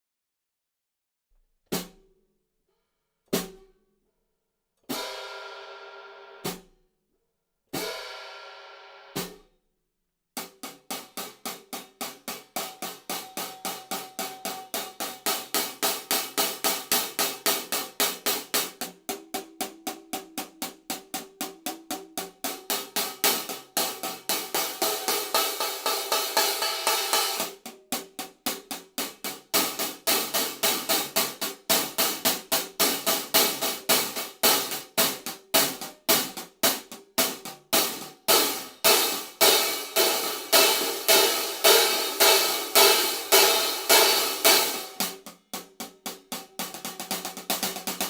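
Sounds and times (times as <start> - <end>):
hi-hat strikes: 22.2 - 48.0
open hi-hat ringing: 22.9 - 27.6, 37.9 - 45.3.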